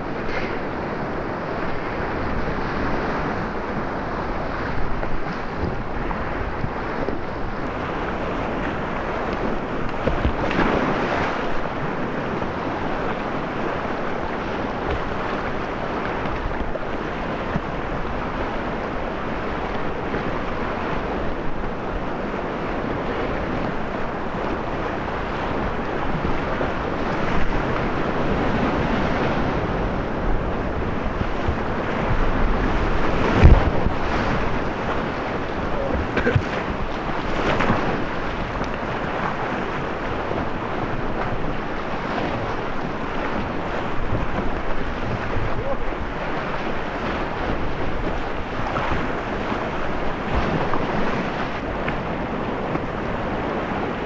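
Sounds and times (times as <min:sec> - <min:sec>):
whitewater rapids rushing: 0:00.0 - 0:54.0
wind buffeting microphone: 0:00.0 - 0:54.0.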